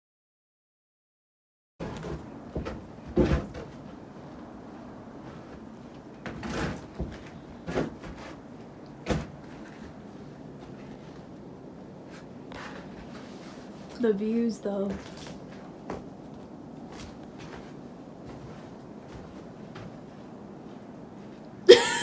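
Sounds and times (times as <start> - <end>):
soft thumps and rustles: 1.8 - 4.5, 5.2 - 11.3
low background hiss: 8.6 - 22.0.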